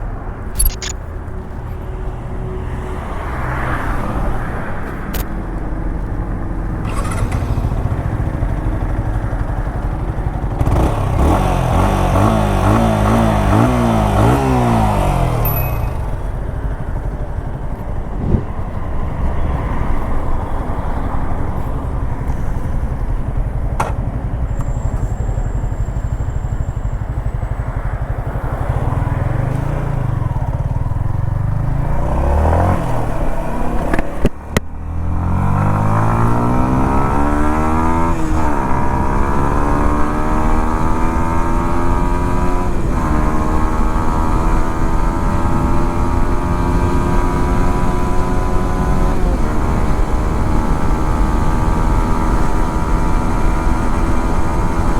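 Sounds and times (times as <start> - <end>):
motorcycle engine accelerating: 5.0 - 54.9.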